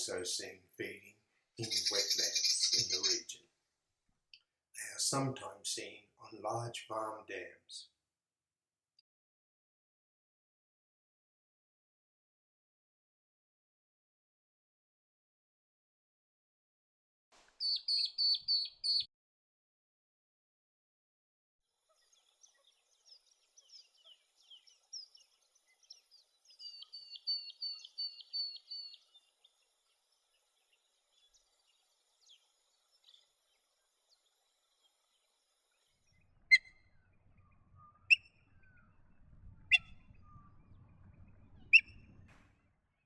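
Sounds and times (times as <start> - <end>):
wild birds chirping: 0.0 - 3.6, 17.6 - 19.1, 21.8 - 43.0
sharp loud bird calls: 1.6 - 3.4, 17.6 - 19.1, 22.0 - 29.5, 36.3 - 42.5
faint low rumble: 36.1 - 43.0.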